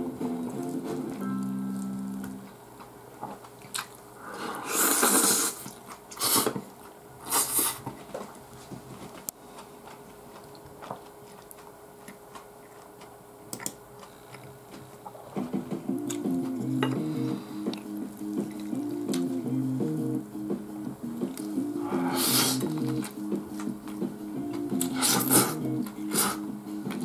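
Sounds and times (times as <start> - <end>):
person chewing and eating: 0.3 - 19.3, 21.1 - 27.0
loud mouth sounds: 4.2 - 6.5, 21.4 - 23.2, 24.8 - 26.5.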